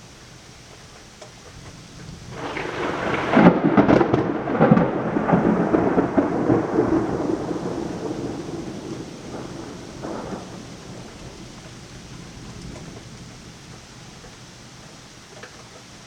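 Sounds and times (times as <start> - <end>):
steady rain: 0.0 - 16.0
thunder clap rumbling: 1.5 - 15.2.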